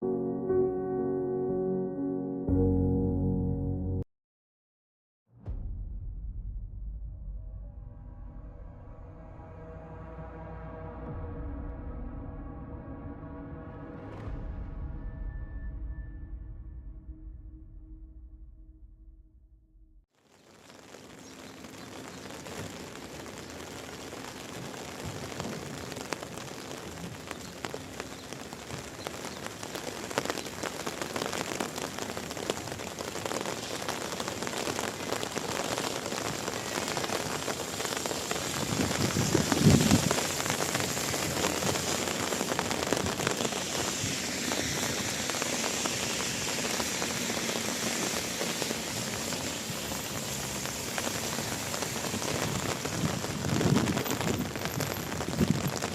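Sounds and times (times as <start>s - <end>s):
low rumble: 5.4s - 20.0s
steady rain falling: 20.2s - 55.9s.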